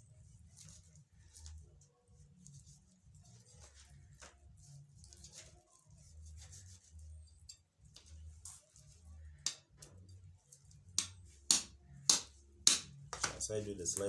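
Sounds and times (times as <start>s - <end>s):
knife scraping raw chicken: 4.8s - 9.1s.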